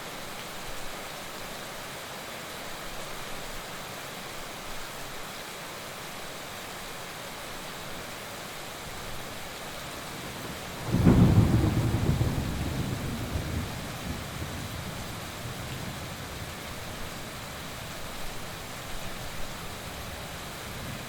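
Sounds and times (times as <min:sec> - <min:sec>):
heavy rain: 0:00.0 - 0:21.0
thunder rumble: 0:10.4 - 0:16.1.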